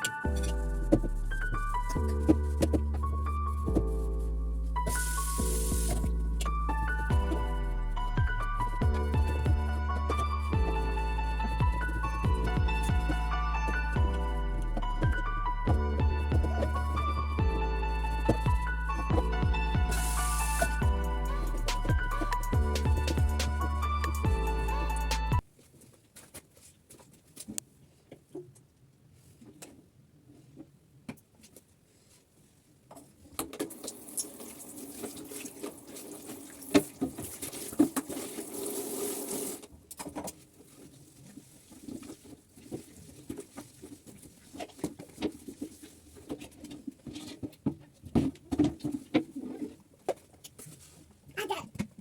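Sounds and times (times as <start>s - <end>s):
water tap running: 33.7s - 36.8s, 38.1s - 39.6s.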